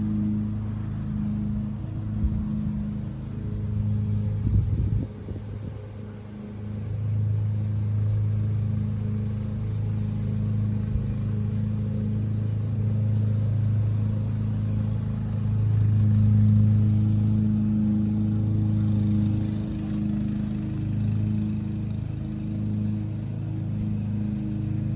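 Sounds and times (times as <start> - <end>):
low machine hum: 0.0 - 24.9.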